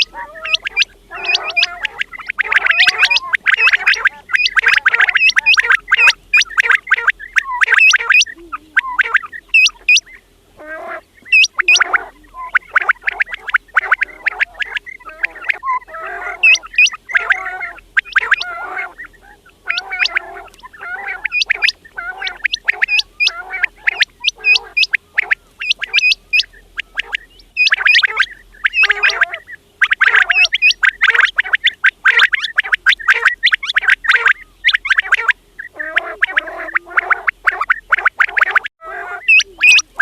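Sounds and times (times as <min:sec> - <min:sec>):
quails calling: 0:00.0 - 0:40.0.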